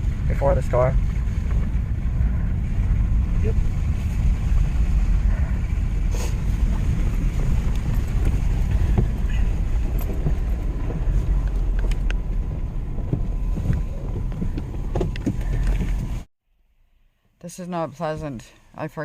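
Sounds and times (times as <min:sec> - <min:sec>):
engine and road rumble: 0:00.0 - 0:19.0.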